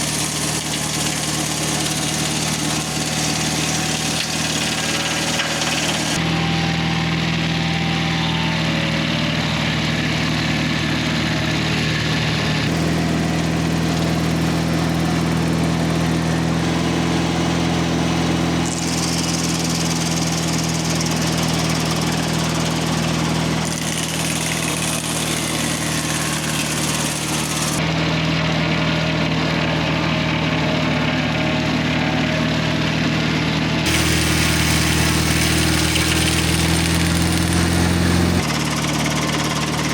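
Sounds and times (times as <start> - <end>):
sawmill engine running: 0.0 - 27.8, 33.8 - 39.9
continuous hiss: 33.9 - 38.4.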